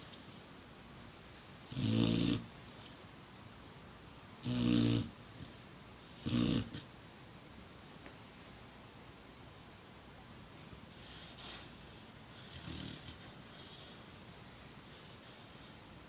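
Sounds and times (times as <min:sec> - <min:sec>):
puppy snoring: 0:01.7 - 0:03.0, 0:04.4 - 0:06.9, 0:12.3 - 0:14.0.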